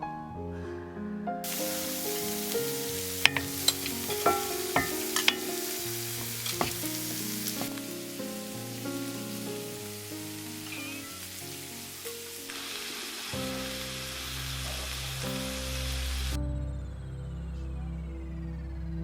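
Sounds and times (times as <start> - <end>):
soft background music: 0.0 - 19.0
food sizzling in a pan: 1.4 - 16.4
utensil clicking on pan: 3.2 - 7.8.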